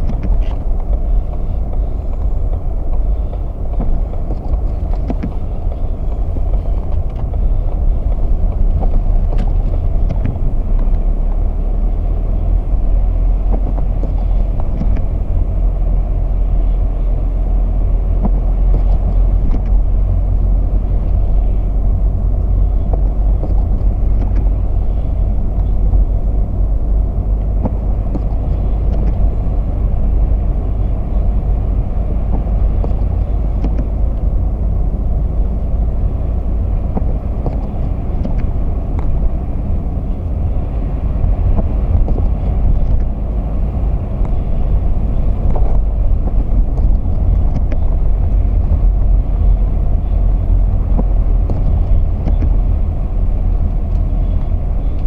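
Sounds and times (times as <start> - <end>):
vehicle driving rumble: 0.0 - 55.0.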